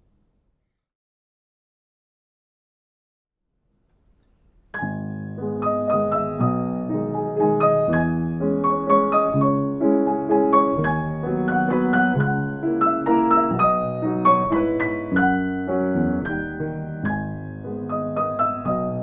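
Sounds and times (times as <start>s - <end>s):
solo piano piece: 4.4s - 19.0s.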